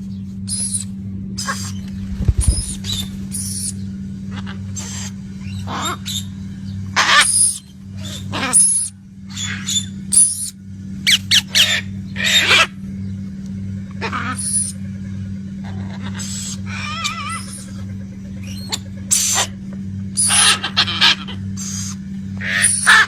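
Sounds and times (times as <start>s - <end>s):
steady low hum: 0.0s - 23.0s
birds harsh calls: 0.1s - 23.0s.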